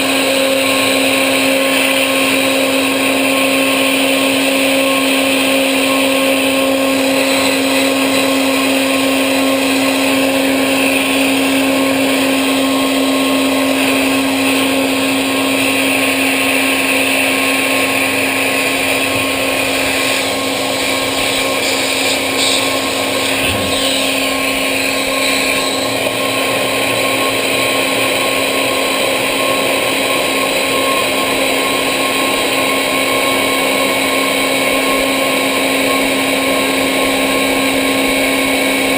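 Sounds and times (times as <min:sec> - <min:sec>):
cnc machine running: 0:00.0 - 0:38.9
constant pitched hum: 0:04.7 - 0:27.6.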